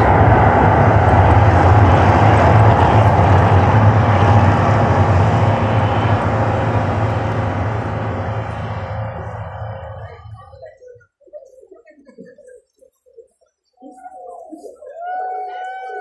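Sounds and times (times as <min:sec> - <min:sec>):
loud low rumble: 0:00.0 - 0:10.7.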